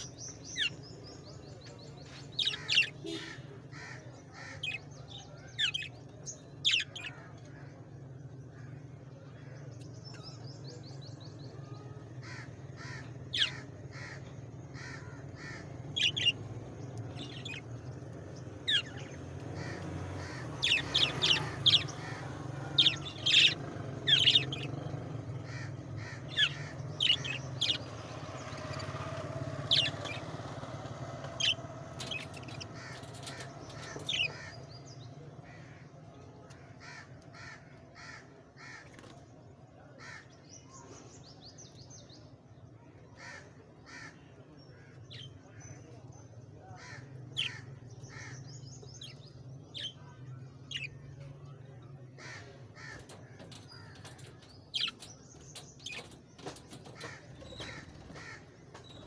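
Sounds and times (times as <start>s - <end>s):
birds calling and squawking: 0.0s - 59.0s.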